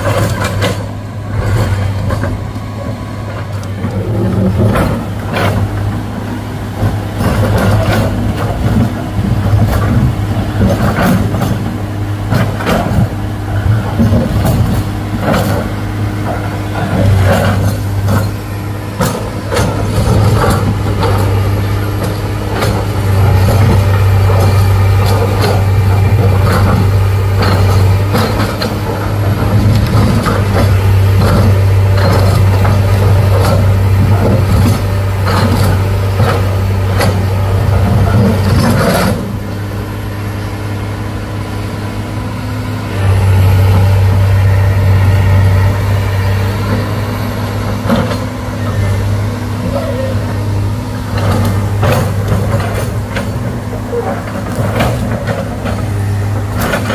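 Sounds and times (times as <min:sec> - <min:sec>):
diesel engine droning: 0:00.0 - 0:56.9
metallic clanks and knocks: 0:19.0 - 0:39.6.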